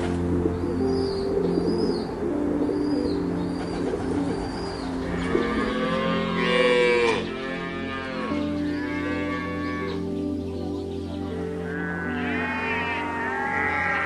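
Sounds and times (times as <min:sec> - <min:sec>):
bird chirping: 0:00.0 - 0:14.0
soft background music: 0:00.0 - 0:14.0
cow mooing: 0:05.0 - 0:10.0, 0:11.6 - 0:14.0.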